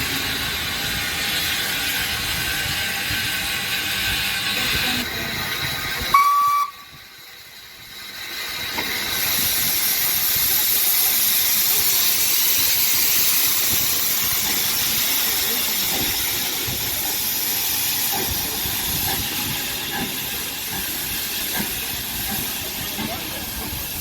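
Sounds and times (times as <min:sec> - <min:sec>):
steam hissing: 0:00.0 - 0:24.0
steam locomotive whistle blast: 0:06.1 - 0:07.0.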